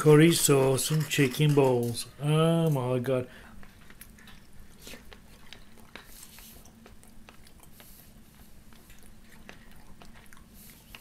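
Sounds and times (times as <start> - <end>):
faint low hum: 0.0 - 11.0
person chewing: 3.8 - 11.0.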